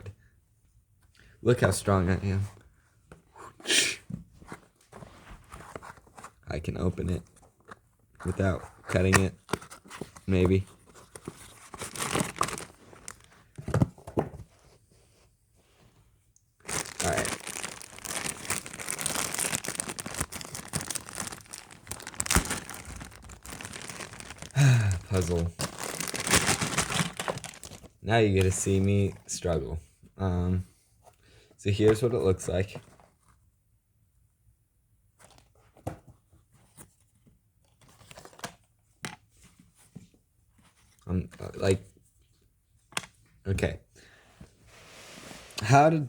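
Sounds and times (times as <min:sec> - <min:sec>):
cardboard puzzle pieces rustling: 0:09.0 - 0:13.8, 0:16.6 - 0:28.0
packaging tearing and crinkling: 0:11.6 - 0:13.4, 0:16.6 - 0:28.0.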